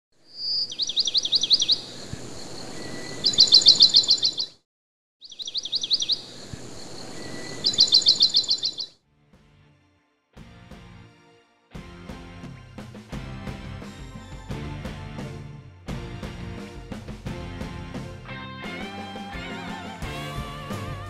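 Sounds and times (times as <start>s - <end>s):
songbird singing: 0.2s - 4.6s, 5.2s - 8.9s.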